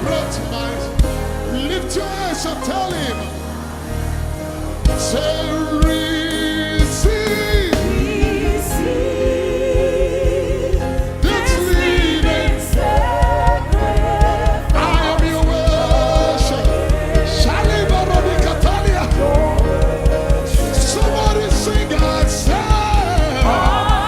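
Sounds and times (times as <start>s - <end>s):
voices singing long notes: 0.0s - 24.0s
band with steady beat: 4.8s - 24.0s.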